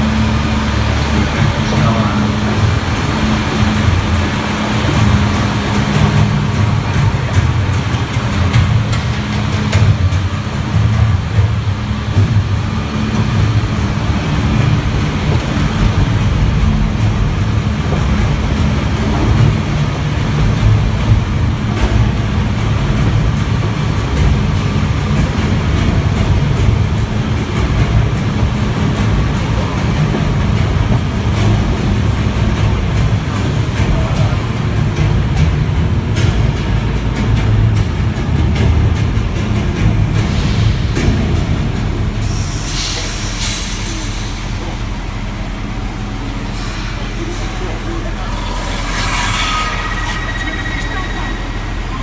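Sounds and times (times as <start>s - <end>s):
tram running noise: 0.0s - 52.0s
heavy bass sound effects: 45.2s - 52.0s.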